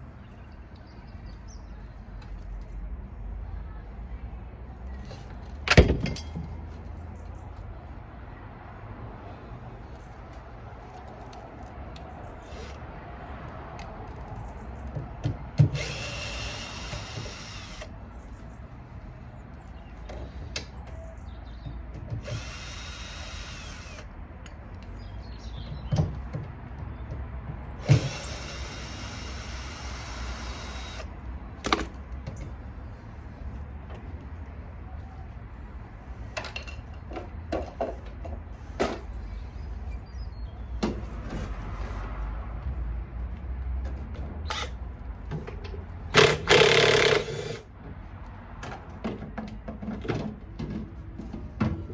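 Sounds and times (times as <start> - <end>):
power drill whining: 15.8 - 17.9, 22.2 - 24.0, 27.8 - 31.1, 46.2 - 47.6.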